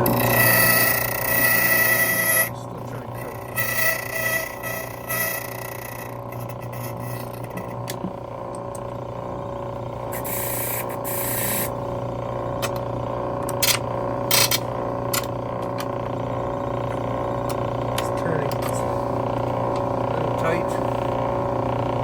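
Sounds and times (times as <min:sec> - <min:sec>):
cutter hissing: 0:00.0 - 0:07.9, 0:10.1 - 0:11.7
key-cutting machine running: 0:00.0 - 0:22.0.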